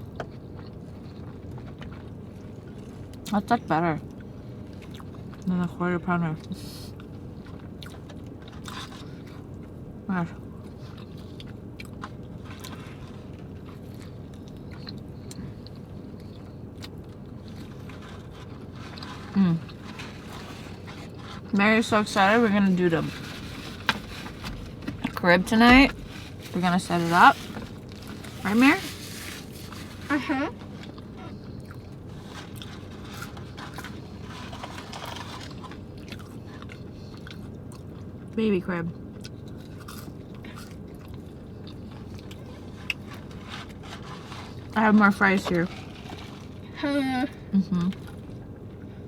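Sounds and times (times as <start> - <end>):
person chewing food: 0.0 - 3.3, 4.0 - 5.5, 6.9 - 21.5, 30.6 - 38.4, 39.1 - 44.8
steady low hum: 0.0 - 49.0.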